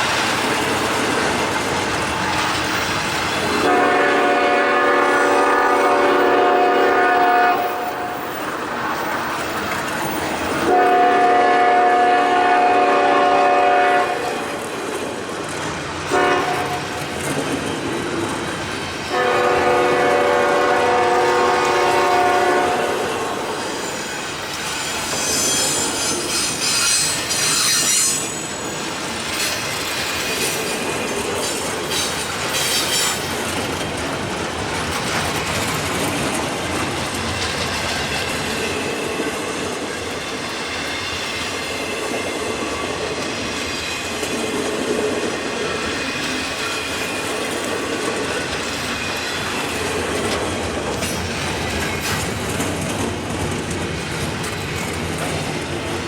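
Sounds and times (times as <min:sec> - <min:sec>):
clickety-clack over rail joints: 0:00.0 - 0:11.9, 0:12.6 - 0:56.0
freight train wheels rumbling: 0:00.0 - 0:56.0
shrill wheel squeal: 0:23.3 - 0:33.5.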